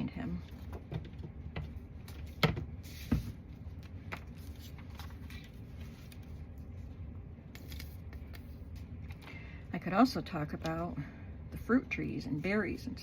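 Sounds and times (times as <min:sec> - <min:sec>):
low steady hum: 0:00.0 - 0:13.0
paper rustling: 0:02.0 - 0:06.9, 0:07.5 - 0:09.3.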